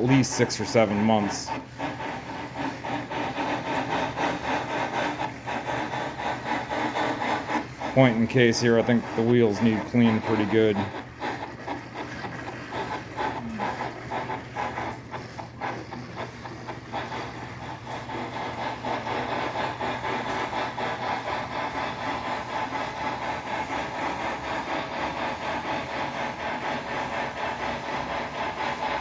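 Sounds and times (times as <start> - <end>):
model train steam chuffs and hiss: 0.0 - 2.0, 2.6 - 11.4, 16.9 - 29.0.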